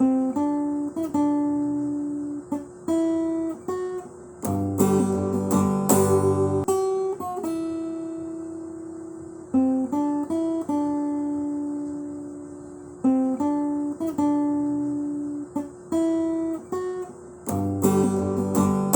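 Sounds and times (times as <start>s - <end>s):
plucked acoustic guitar notes: 0.0s - 8.7s, 13.0s - 18.9s
strummed guitar chords: 0.0s - 18.9s.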